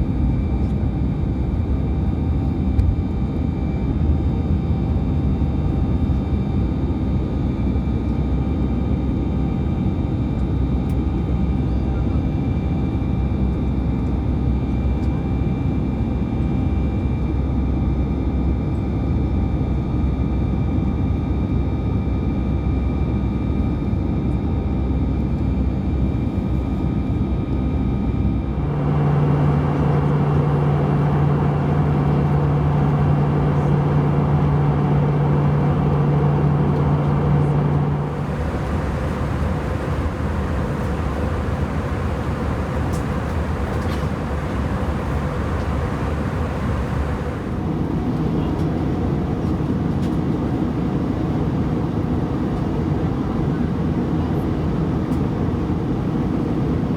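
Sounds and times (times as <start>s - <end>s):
airplane cabin engine noise: 0.0s - 56.9s
strong low hum: 28.3s - 48.2s
whining tones: 28.6s - 47.6s.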